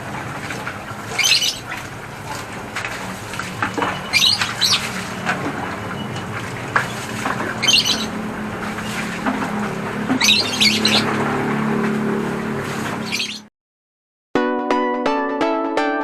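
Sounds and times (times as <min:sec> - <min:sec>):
birds squawking: 0:00.6 - 0:11.8, 0:12.8 - 0:13.5.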